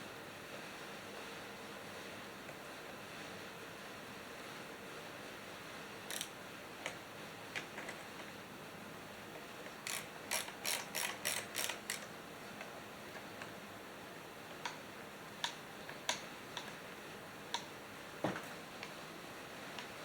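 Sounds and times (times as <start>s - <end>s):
mechanical clicking: 6.1s - 6.3s, 9.9s - 12.1s.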